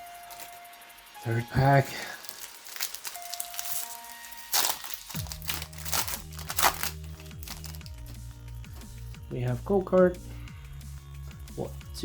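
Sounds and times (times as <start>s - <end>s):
foil wrapper crinkling: 0.0s - 0.6s, 1.2s - 8.0s
background music with bass line: 4.6s - 12.0s.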